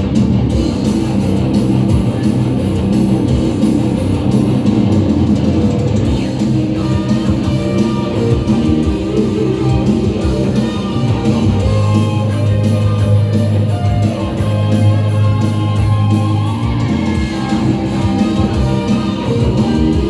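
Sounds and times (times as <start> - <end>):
electric guitar lines: 0.0 - 20.0
live rock band playing: 0.0 - 20.0.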